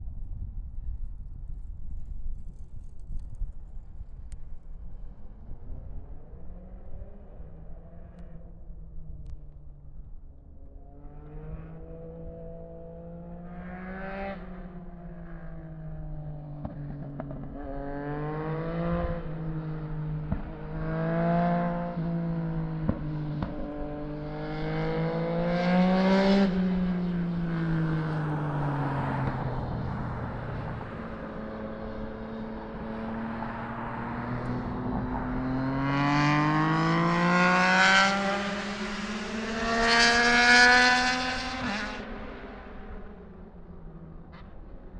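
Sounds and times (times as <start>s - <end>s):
motorcycle engine revving: 16.6s - 44.7s.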